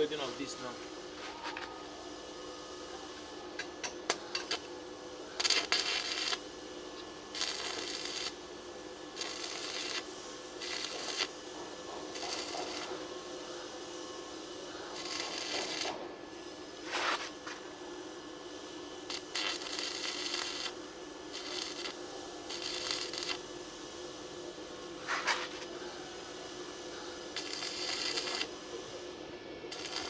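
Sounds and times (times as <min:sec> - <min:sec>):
steady hum: 0:00.0 - 0:30.0
welding arc crackle: 0:04.1 - 0:13.2, 0:14.7 - 0:17.6, 0:19.0 - 0:23.6, 0:27.2 - 0:28.8, 0:29.7 - 0:30.0.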